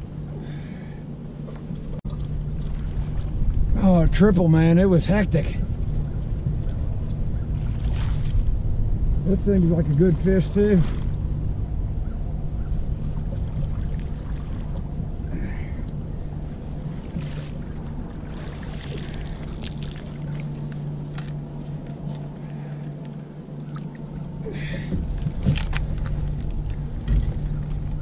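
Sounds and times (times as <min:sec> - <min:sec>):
boat motor humming: 0:00.0 - 0:28.0
clicks and knocks on boat: 0:24.7 - 0:28.0.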